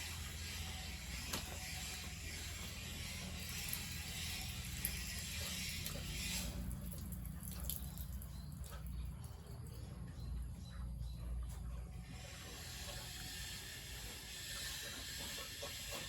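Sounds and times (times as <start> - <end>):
running water hissing: 0.0 - 8.2, 12.2 - 16.0.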